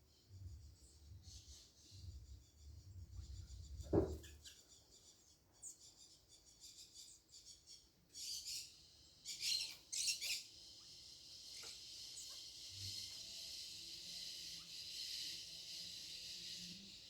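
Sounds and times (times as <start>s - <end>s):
small birds chirping: 0.0s - 17.0s
thump: 3.8s - 4.4s.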